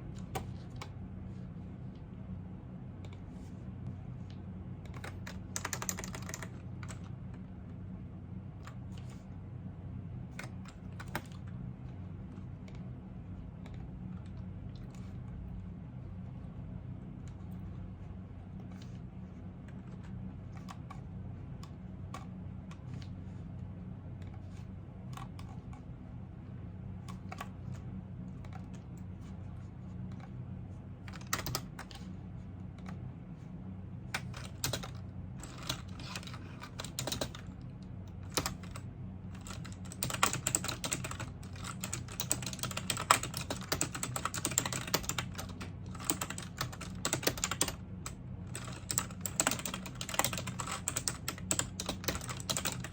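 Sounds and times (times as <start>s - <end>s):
steady low hum: 0.0s - 52.9s
typing on computer keyboard: 4.9s - 7.1s, 10.4s - 11.4s, 31.0s - 32.0s, 34.2s - 37.6s, 38.2s - 52.9s.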